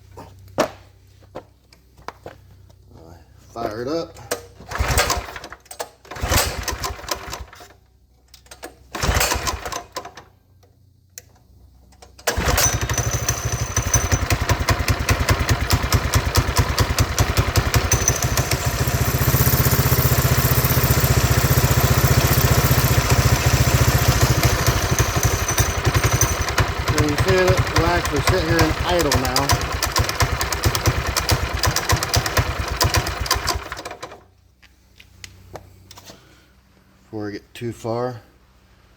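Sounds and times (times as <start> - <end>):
small engine cranking and idling: 4.2 - 10.4, 11.2 - 34.3.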